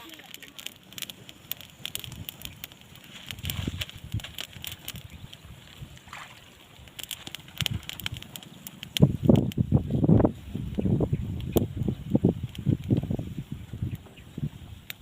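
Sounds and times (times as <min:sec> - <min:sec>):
water sloshing and splashing: 0:06.0 - 0:06.6.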